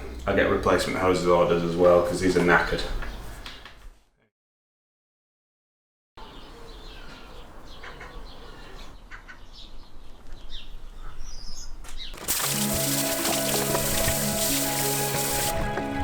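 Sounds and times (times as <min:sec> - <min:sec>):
birds chirping: 0:06.2 - 0:15.5
music: 0:12.3 - 0:16.0.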